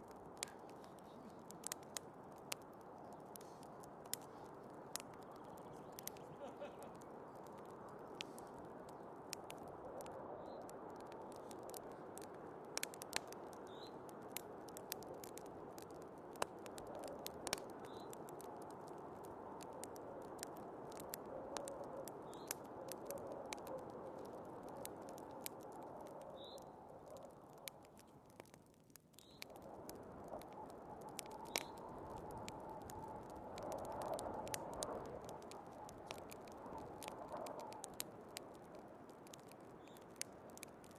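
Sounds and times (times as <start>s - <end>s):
wood fire crackling and popping: 0.0s - 40.9s
snowstorm wind: 29.4s - 40.9s.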